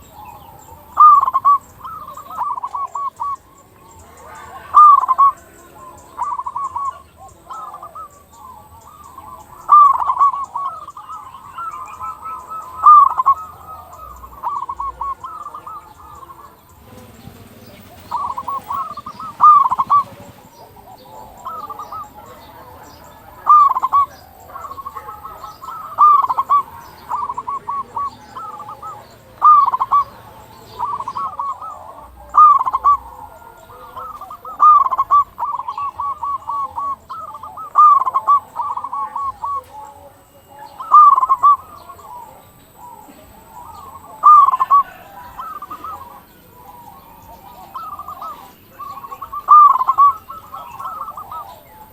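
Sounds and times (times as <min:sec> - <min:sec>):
dove cooing: 0:00.0 - 0:51.9.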